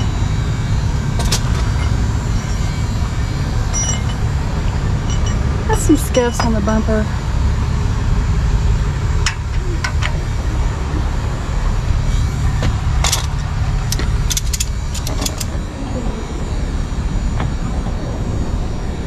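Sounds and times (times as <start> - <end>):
vehicle engine idling: 0.0 - 19.0
sharp clicks and light rattles: 12.6 - 15.6.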